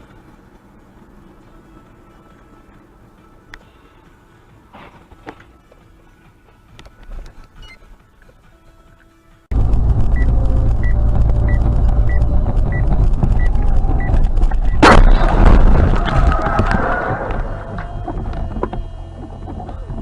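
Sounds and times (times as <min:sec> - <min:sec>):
road and engine rumble: 0:00.0 - 0:20.0
loud crash impact: 0:14.7 - 0:17.6.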